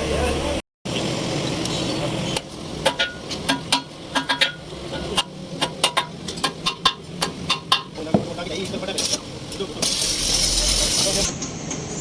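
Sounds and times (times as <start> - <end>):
metal-on-metal taps: 2.8 - 8.3
steady machine noise: 9.8 - 12.0.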